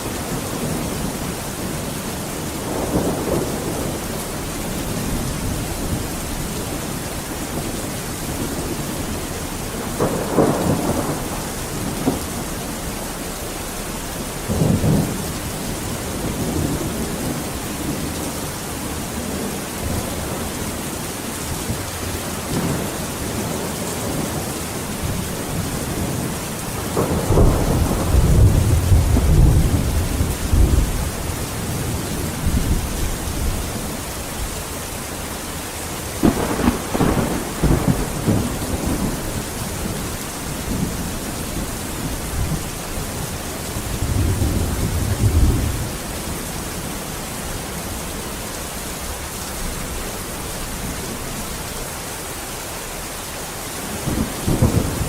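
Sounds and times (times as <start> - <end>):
low rumble of thunder: 0.0 - 51.7, 53.8 - 55.0
heavy rain: 0.0 - 55.0
sharp thunderclap: 9.8 - 13.3, 14.1 - 18.1, 25.0 - 33.6, 36.2 - 42.8.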